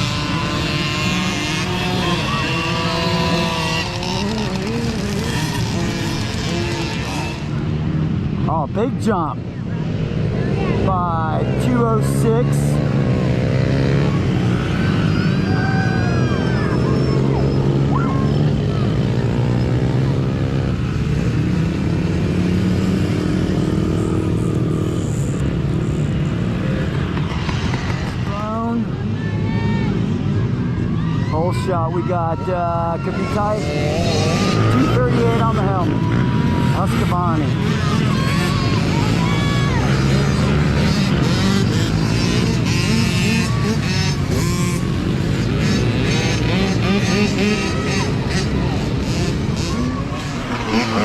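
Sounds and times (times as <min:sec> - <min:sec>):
mini dirt bike engines revving: 0:00.0 - 0:51.0.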